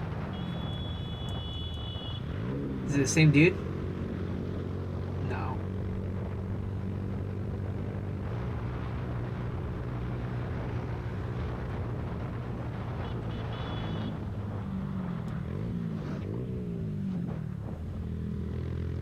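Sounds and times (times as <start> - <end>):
motorcycle engine running: 0.0 - 19.0
road and wind noise: 0.0 - 19.0.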